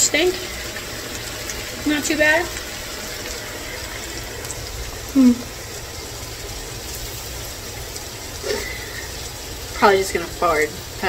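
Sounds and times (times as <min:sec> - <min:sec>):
food sizzling in a frying pan: 0:00.0 - 0:11.0
person humming: 0:05.1 - 0:05.5.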